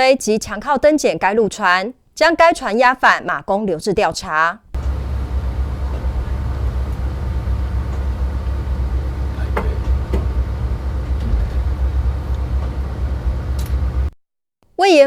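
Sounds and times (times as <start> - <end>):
boat engine rumble: 4.8 - 14.1.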